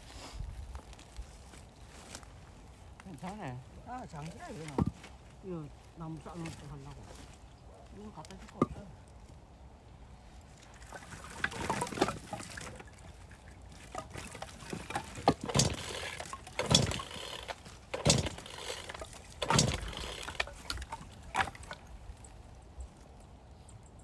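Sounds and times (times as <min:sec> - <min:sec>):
firewood knocks and thuds: 0:04.2 - 0:05.2, 0:08.4 - 0:08.9, 0:10.9 - 0:13.0, 0:13.8 - 0:21.9.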